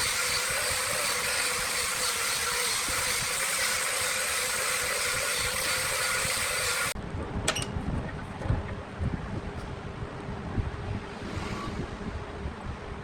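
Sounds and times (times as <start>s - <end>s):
wood lathe hissing: 0.0s - 7.0s
low uneven rumble: 7.0s - 13.0s.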